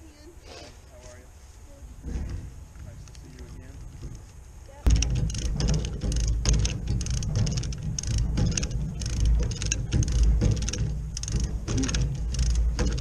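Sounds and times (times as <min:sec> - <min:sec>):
engine deep rumble: 0:02.0 - 0:13.0.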